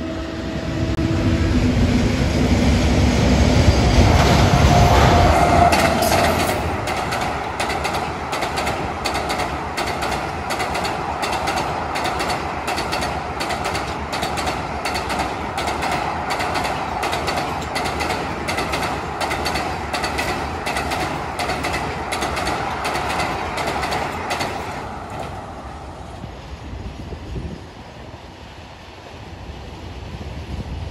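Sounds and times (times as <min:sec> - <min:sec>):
train rolling rumble: 0:00.0 - 0:30.9
train wheels clattering over rail joints: 0:04.0 - 0:25.7.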